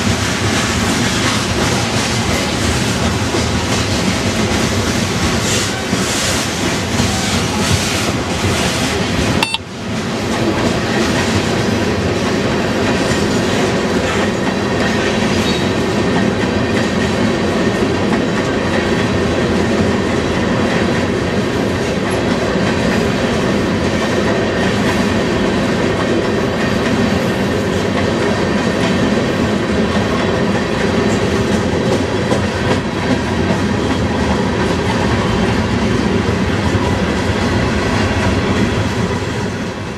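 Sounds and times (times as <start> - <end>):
freight train wheels on rails: 0.0 - 39.9.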